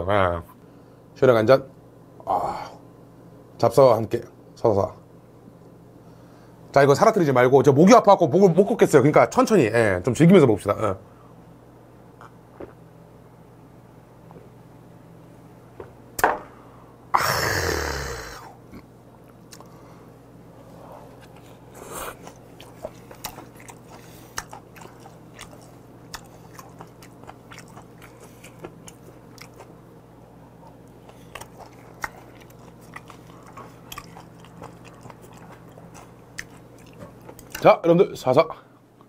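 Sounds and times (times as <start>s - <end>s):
man chewing wetly: 19.3s - 19.8s, 21.0s - 37.6s.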